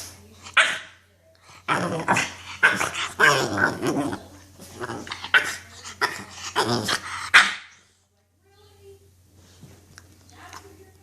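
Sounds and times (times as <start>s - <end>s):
puppy growling and barking: 0.6s - 7.8s.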